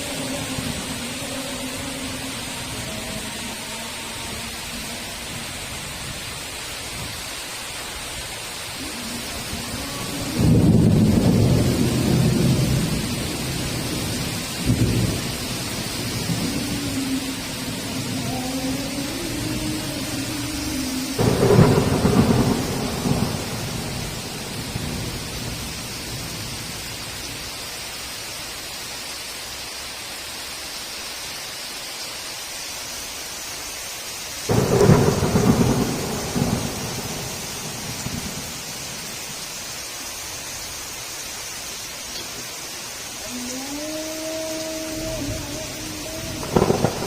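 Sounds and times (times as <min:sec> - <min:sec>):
heavy rain hissing: 0:00.0 - 0:47.0
thunder claps rumbling: 0:08.8 - 0:26.6, 0:34.5 - 0:39.3, 0:44.8 - 0:47.0.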